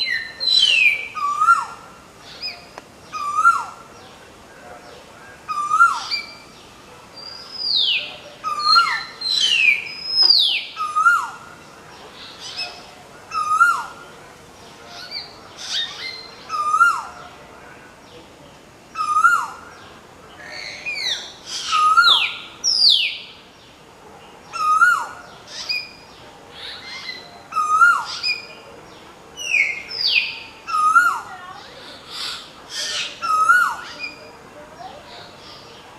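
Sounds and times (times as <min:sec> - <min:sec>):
birds whistling and calling: 0:00.0 - 0:04.2, 0:05.4 - 0:14.0, 0:14.9 - 0:17.4, 0:18.9 - 0:23.4, 0:24.5 - 0:35.8
low repeating bird call: 0:00.0 - 0:04.2, 0:07.2 - 0:14.2.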